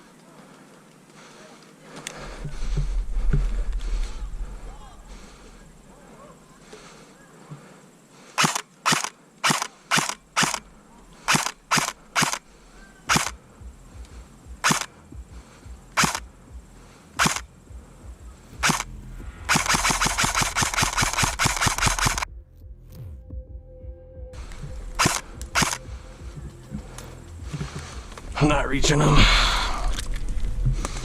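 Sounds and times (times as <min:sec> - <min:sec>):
airsoft rifle single shots: 0:08.4 - 0:10.7, 0:13.1 - 0:13.4, 0:14.6 - 0:14.9, 0:16.0 - 0:16.2, 0:17.2 - 0:17.4, 0:19.5 - 0:22.2, 0:25.0 - 0:25.8
airsoft rifle full-auto burst: 0:08.4 - 0:12.5, 0:13.1 - 0:13.4, 0:14.6 - 0:14.9, 0:16.0 - 0:16.2, 0:17.2 - 0:17.5, 0:18.6 - 0:18.9, 0:19.5 - 0:22.3, 0:25.0 - 0:25.8.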